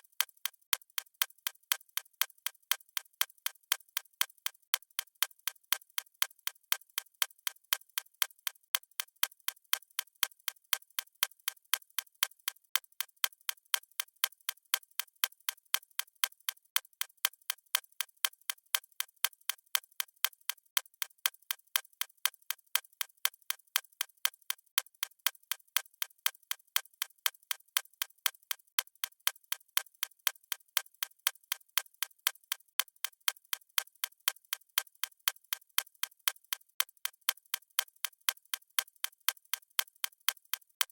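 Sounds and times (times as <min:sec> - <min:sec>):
clock ticking: 0:31.7 - 0:40.9.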